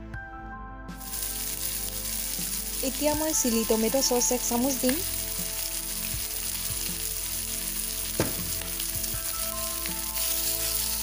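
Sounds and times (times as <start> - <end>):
chicken sizzling in oil: 1.0 - 11.0
sharp knock: 8.2 - 8.6.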